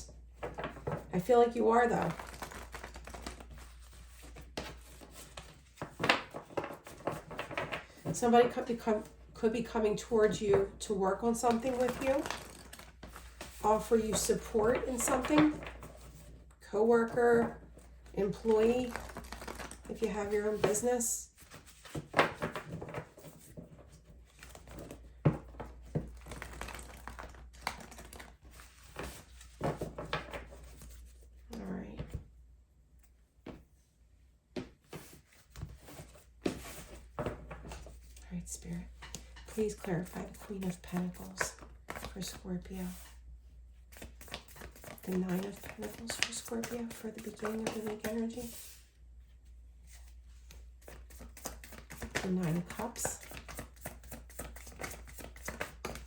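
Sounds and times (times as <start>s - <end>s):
cards clicking and rustling: 2.1s - 8.1s, 18.4s - 20.8s, 24.3s - 31.0s, 43.9s - 48.8s, 50.8s - 56.0s.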